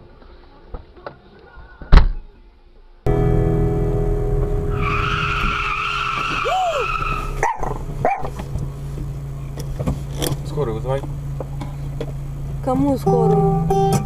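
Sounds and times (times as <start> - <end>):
vehicle engine hum: 3.1 - 14.0
car tyres squealing: 4.6 - 12.5.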